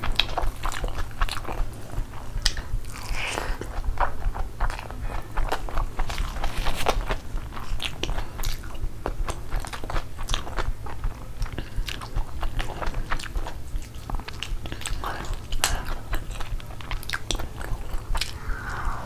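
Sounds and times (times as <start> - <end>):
chewing with mouth clicks: 0.0 - 18.4.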